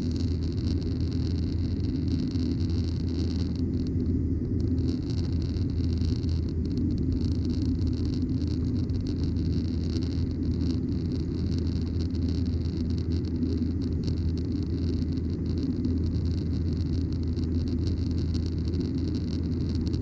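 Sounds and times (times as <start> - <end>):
airplane cabin drone: 0.0 - 20.0.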